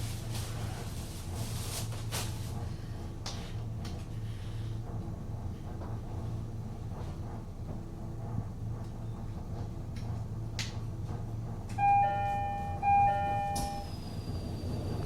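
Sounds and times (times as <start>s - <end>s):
train carriage low rumble: 0.0s - 15.0s
two-note electronic chime: 11.8s - 13.9s.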